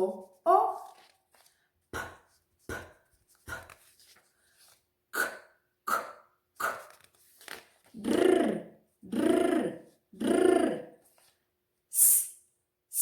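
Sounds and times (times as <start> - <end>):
person voicing breathy p puffs: 5.2 - 6.9, 8.0 - 11.0, 11.9 - 12.3
person voicing sharp k bursts: 5.2 - 6.9, 8.0 - 10.9, 12.0 - 12.3.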